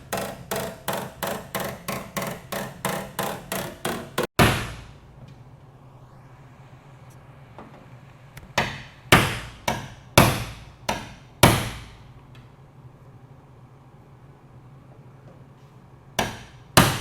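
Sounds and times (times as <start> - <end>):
hammer blows on sheet metal: 0.2 - 5.0, 8.5 - 12.0.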